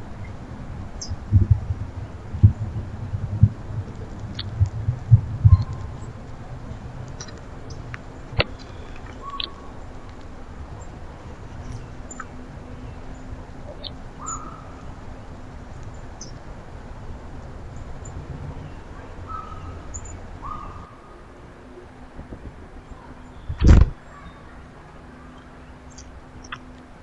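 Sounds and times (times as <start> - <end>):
bird calls: 0.0 - 27.0
faint hum: 0.0 - 27.0
high bird chirps: 7.2 - 16.4, 17.8 - 21.2, 25.2 - 26.8.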